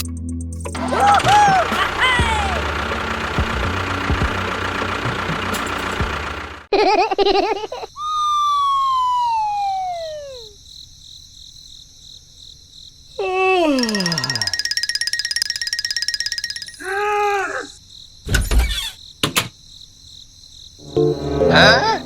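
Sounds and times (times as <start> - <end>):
mechanical running noise: 0.7 - 6.7
falling whistle: 8.0 - 10.6
wobbling warbling tone: 20.8 - 22.0.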